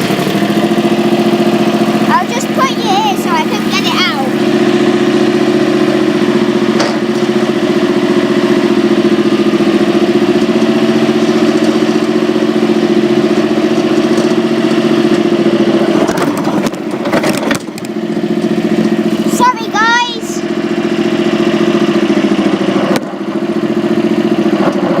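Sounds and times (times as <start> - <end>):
tractor engine idling: 0.0 - 12.6, 17.7 - 22.2.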